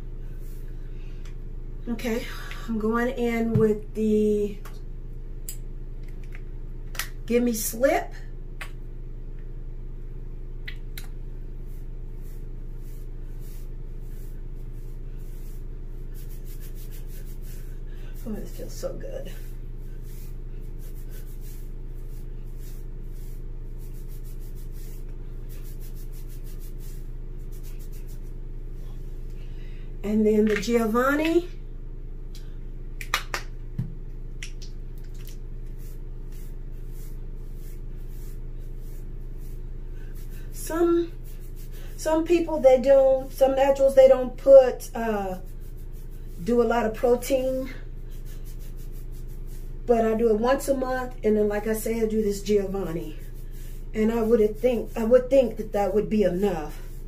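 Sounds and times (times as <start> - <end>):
steady low hum: 0.0 - 57.0
fingertips rubbing hair: 11.6 - 28.4, 35.1 - 44.1, 45.0 - 57.0
hands squishing wet hair: 34.4 - 39.1.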